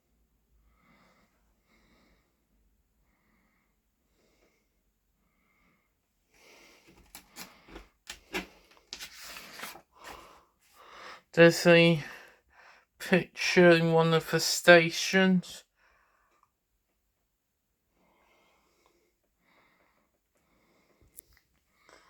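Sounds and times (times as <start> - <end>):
soft breaths: 0.5 - 11.3, 17.9 - 22.0
paper pages rustling: 6.9 - 10.3.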